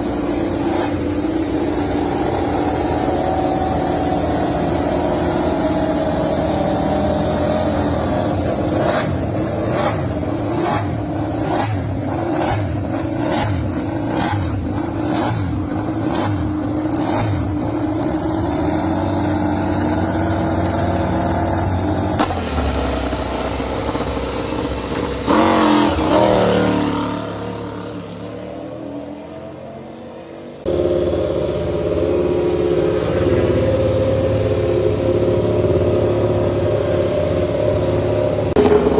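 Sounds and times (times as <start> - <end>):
motorcycle passing by: 0.0 - 38.9
racing motorcycle engines revving: 0.0 - 38.9.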